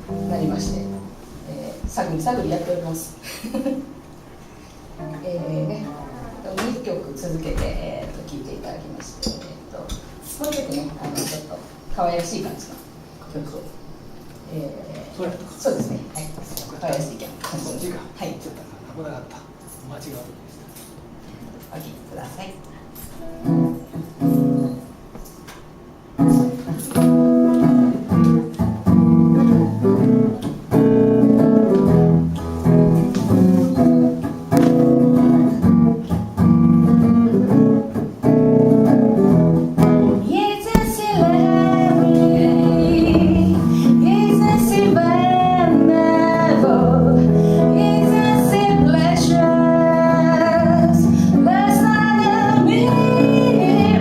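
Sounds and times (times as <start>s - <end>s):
jazz guitar playing: 0.0s - 1.4s, 23.2s - 24.8s, 26.2s - 54.0s
woman singing: 40.2s - 54.0s.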